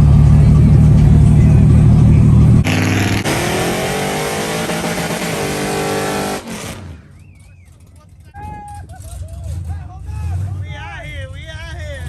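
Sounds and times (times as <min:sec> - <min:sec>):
engine accelerating: 0:00.0 - 0:08.0
deep engine rumble: 0:00.0 - 0:12.0.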